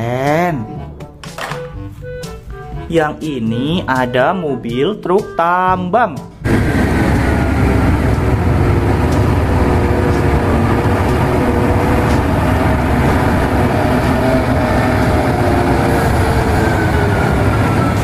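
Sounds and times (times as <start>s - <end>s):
haul trucks driving past: 6.4s - 18.0s.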